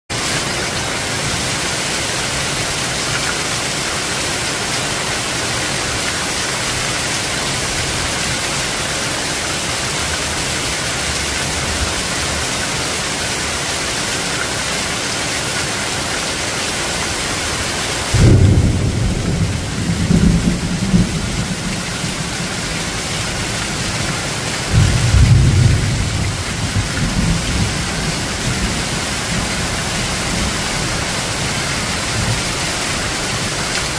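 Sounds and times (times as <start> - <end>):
heavy rain hissing: 0.1 - 33.9
thunder rumbling: 18.1 - 32.5.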